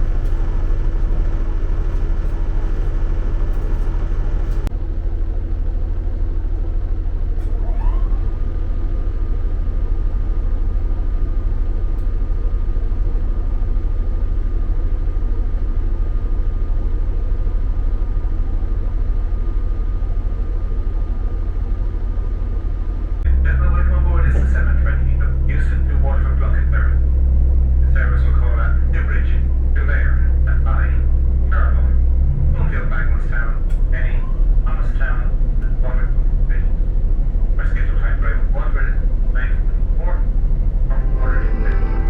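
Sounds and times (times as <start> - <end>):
train rumbling: 0.0 - 42.0
rising tone: 40.8 - 42.0.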